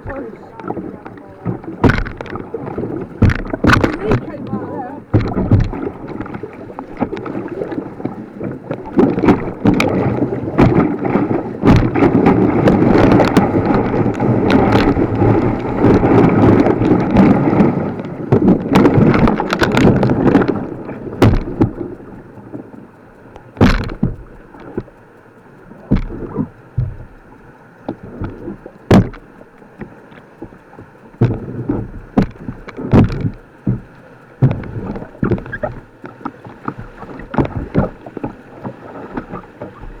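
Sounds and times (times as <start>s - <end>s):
rushing white water: 0.0s - 22.2s
kayak splashes and knocks: 0.0s - 40.0s.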